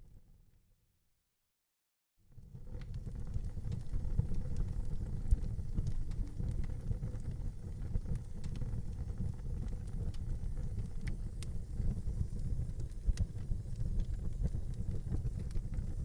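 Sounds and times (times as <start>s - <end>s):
low rumble of flames: 2.2s - 16.0s
fire crackles and pops: 2.3s - 16.0s.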